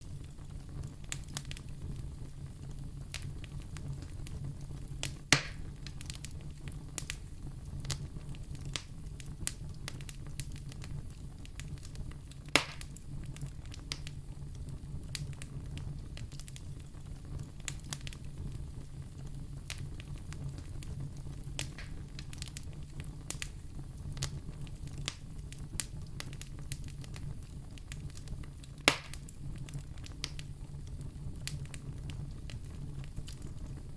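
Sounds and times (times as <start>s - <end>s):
fire crackling and popping: 0.0s - 33.9s
low fire rumble: 0.0s - 33.9s
sharp wood snaps: 12.6s - 12.9s, 28.9s - 29.2s.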